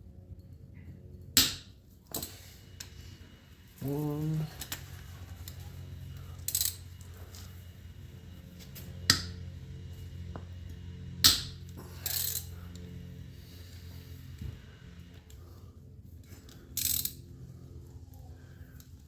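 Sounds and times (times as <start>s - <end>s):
steady low hum: 0.0s - 19.0s
sharp metal clicks: 16.5s - 17.3s.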